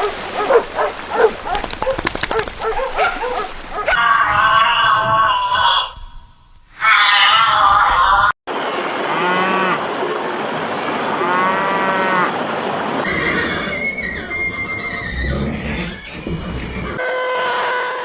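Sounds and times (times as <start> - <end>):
cattle mooing: 9.0 - 9.8, 11.2 - 12.4.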